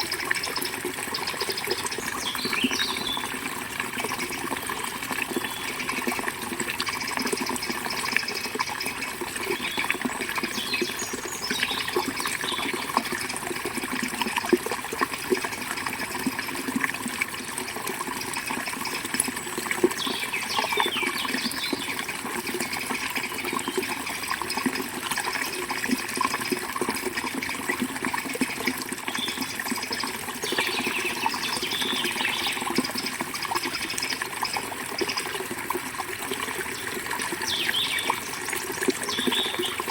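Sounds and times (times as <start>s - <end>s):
river water flowing: 0.0s - 39.9s
birds chirping: 0.6s - 3.3s, 9.5s - 12.7s, 37.4s - 38.2s, 39.1s - 39.9s.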